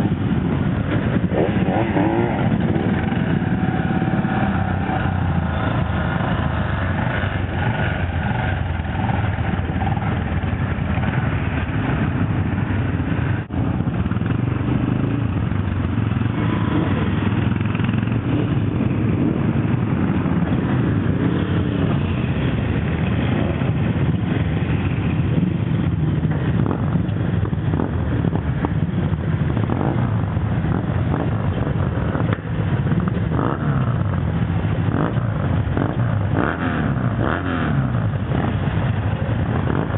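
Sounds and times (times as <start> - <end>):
motorcycle engines running: 0.0 - 39.9.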